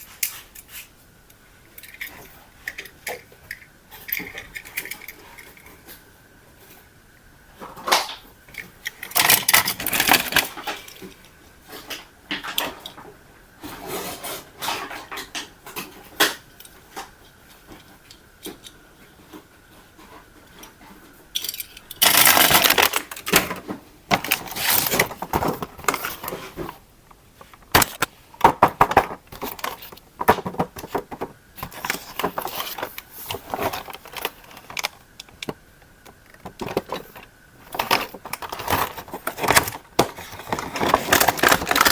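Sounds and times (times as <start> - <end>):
plastic toy clicking and clattering: 1.7 - 5.8, 7.9 - 11.2, 21.4 - 26.4, 27.4 - 41.9.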